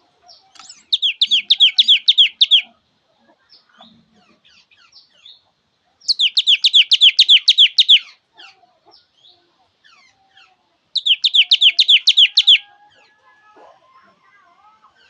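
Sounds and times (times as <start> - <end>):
bird soft twittering: 0.5 - 2.7, 6.1 - 8.1, 11.0 - 12.7
songbird trilling: 0.5 - 2.8, 6.1 - 8.2, 9.9 - 12.7.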